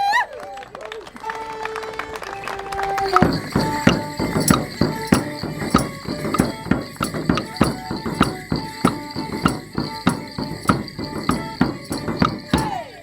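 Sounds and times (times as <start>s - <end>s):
band playing dance tune: 2.9s - 13.0s
bells jingling: 2.9s - 13.0s
sharp stick clacks: 3.0s - 12.8s.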